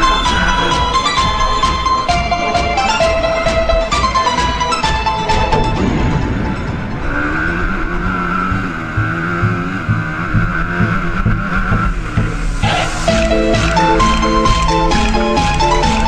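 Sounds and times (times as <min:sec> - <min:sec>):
music: 0:00.0 - 0:07.2, 0:08.5 - 0:16.0
motocross bike engine revving: 0:05.7 - 0:16.0.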